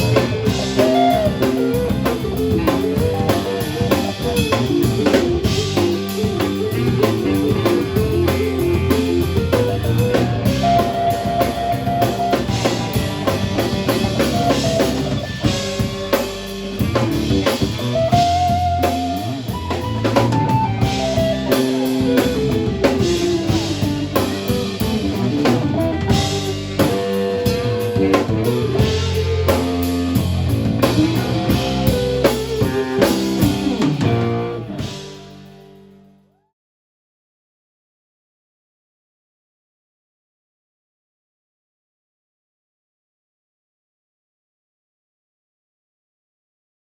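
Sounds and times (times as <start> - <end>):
held melodic notes: 0.0 - 35.1
drum kit beat: 0.0 - 35.8
guitar and bass: 0.0 - 36.3.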